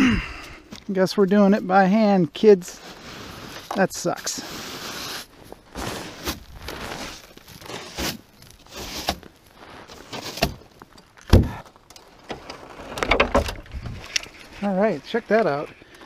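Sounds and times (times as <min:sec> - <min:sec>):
footsteps: 0:05.3 - 0:13.0
heavy thump: 0:11.3 - 0:11.6.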